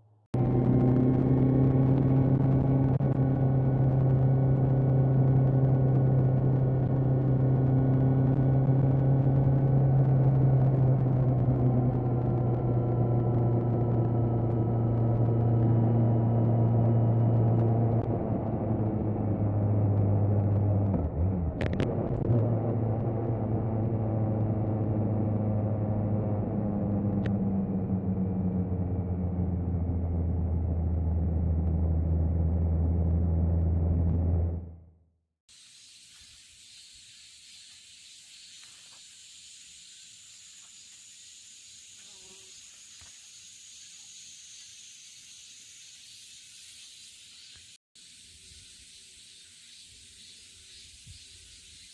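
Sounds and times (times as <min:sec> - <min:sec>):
motorcycle engine running: 0:00.4 - 0:34.8.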